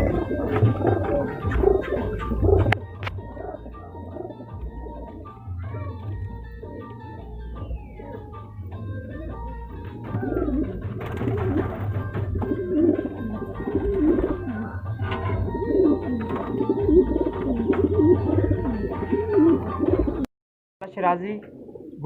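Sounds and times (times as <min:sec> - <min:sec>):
background music: 0:00.0 - 0:20.3
pigeons cooing: 0:00.0 - 0:20.3, 0:21.4 - 0:22.0.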